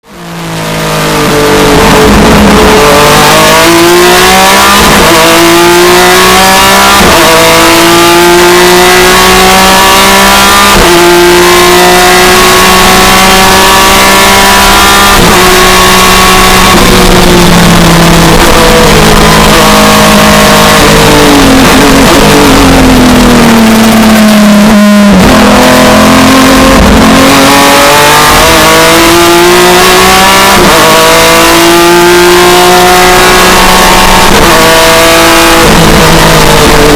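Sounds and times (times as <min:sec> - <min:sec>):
race car engine accelerating: 0:00.0 - 0:36.9.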